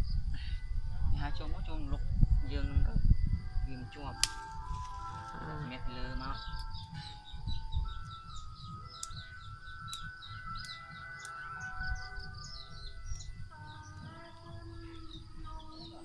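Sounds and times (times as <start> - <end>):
low rumbling noise: 0.0 - 16.0
sustained background music notes: 0.0 - 16.0
small birds chirping: 3.7 - 16.0.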